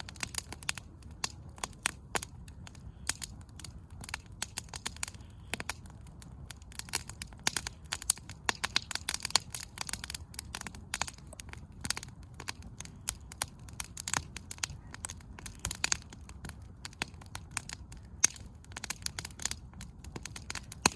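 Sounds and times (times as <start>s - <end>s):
firewood crackling and popping: 0.0s - 20.9s
flames rumbling: 0.0s - 20.9s.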